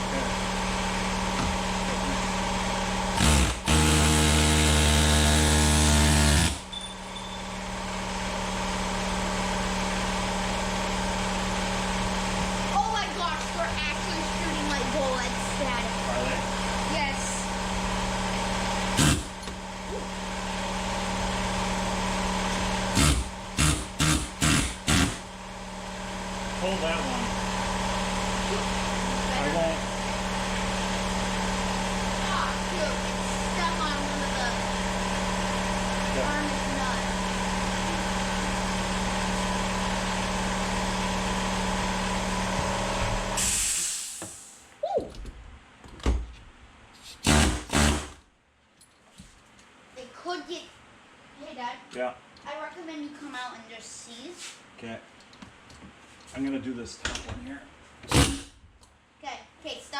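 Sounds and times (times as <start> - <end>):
machine hum: 0.0 - 43.4
air compressor motor running: 0.0 - 44.7, 47.0 - 48.3, 58.1 - 58.7
impact wrench bursts: 2.4 - 12.8, 13.4 - 44.5, 47.2 - 48.2, 58.1 - 58.6
hiss of released air: 43.4 - 44.7.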